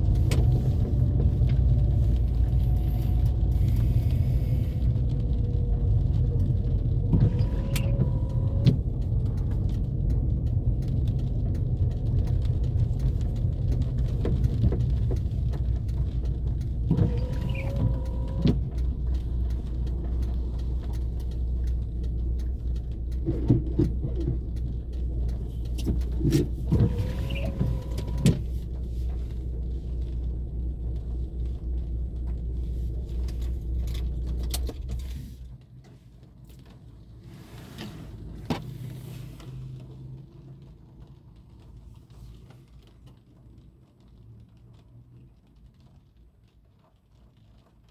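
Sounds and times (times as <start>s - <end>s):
car engine and road rumble: 0.0s - 47.9s
short squeaky whining: 26.8s - 28.3s.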